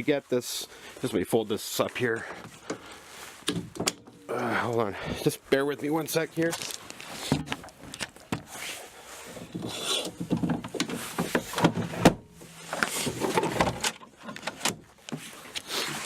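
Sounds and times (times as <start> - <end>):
parts rubbing and scraping: 6.4 - 16.0.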